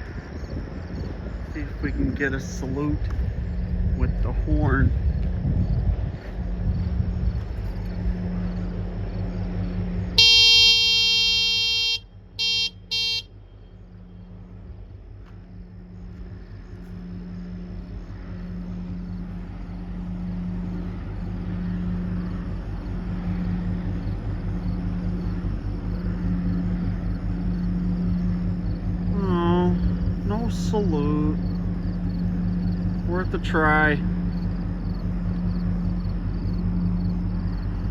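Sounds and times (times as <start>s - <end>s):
low engine drone: 0.0s - 37.9s
ship horn blasts: 8.0s - 37.4s.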